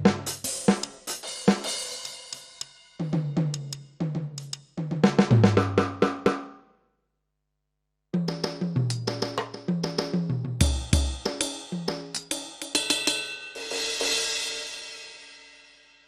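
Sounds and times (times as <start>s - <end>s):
electronic drum tom fills: 8.2s - 13.2s.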